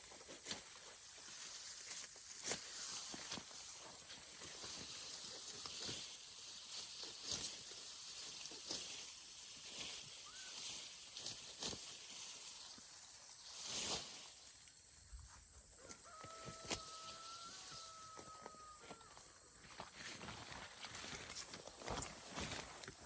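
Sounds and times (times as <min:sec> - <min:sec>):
grass rustling and swishing: 0:00.0 - 0:18.1, 0:19.4 - 0:23.0.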